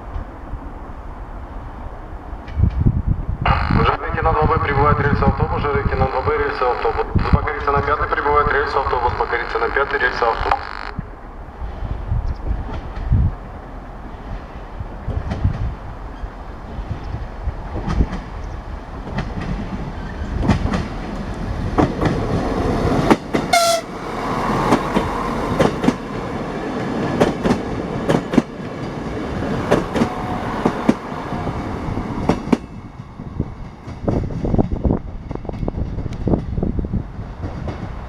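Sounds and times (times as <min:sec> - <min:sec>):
train wheels clicking on rails: 0:11.6 - 0:38.0
train horn toot: 0:23.4 - 0:24.4.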